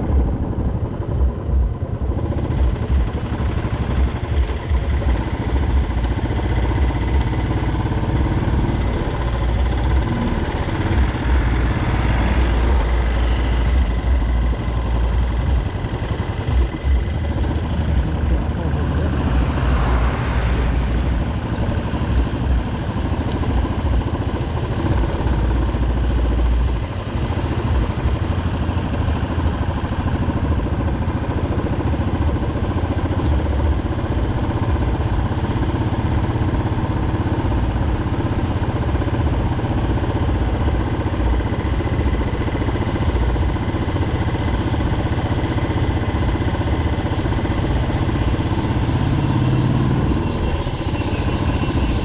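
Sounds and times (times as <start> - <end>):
wind rumble on microphone: 0.0 - 36.8
motorcycle engine running: 0.0 - 52.0.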